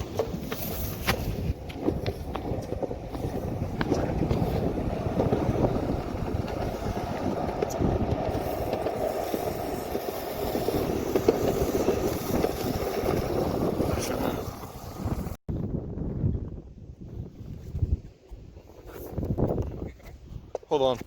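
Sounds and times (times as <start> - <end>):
longboard wheels on wet asphalt: 0.0 - 15.4.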